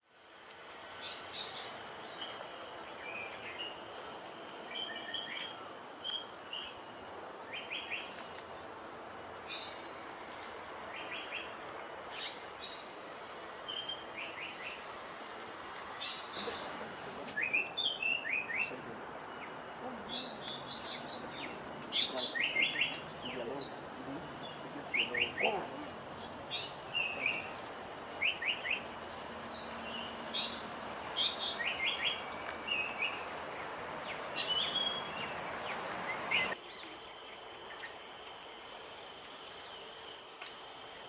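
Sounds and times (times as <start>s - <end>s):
high insect drone: 0.0s - 41.0s
outdoor hiss: 0.0s - 41.0s
birds chirping: 10.9s - 38.0s.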